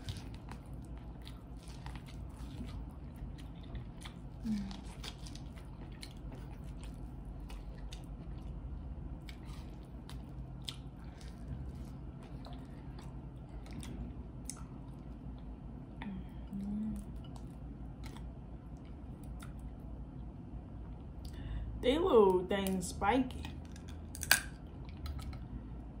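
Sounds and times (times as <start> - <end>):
person chewing: 0.0 - 20.0, 23.5 - 25.7
low hum: 0.0 - 26.0
shells cracking: 23.8 - 24.6.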